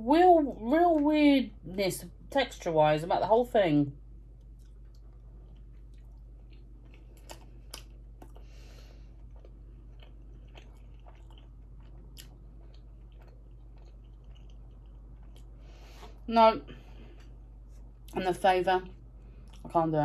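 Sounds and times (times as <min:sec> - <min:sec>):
chewing bread: 0:04.2 - 0:18.2, 0:18.9 - 0:19.7
short breath: 0:08.4 - 0:09.2.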